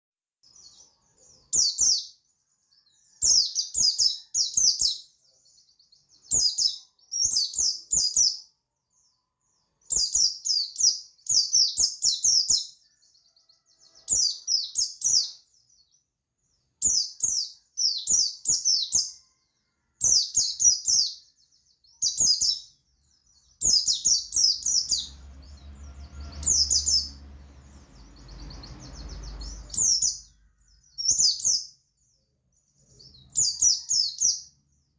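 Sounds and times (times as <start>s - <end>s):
bird twittering chirps: 0.5s - 34.9s
low background rumble: 24.5s - 30.9s.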